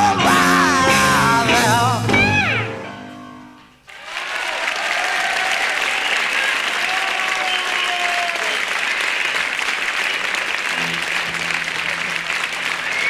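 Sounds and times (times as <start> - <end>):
music: 0.0 - 3.9, 10.7 - 13.0
audience applauding: 3.9 - 13.0.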